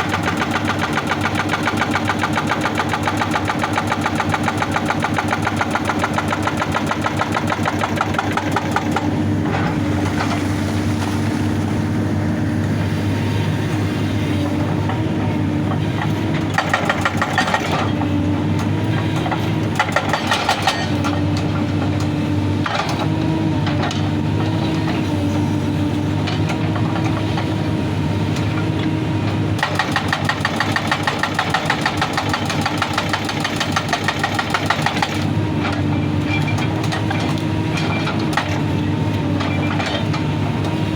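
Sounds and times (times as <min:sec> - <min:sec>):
hydraulic breaker hammering rock: 0:00.0 - 0:10.4, 0:14.5 - 0:25.0, 0:29.5 - 0:40.9
diesel engine running: 0:00.0 - 0:40.9.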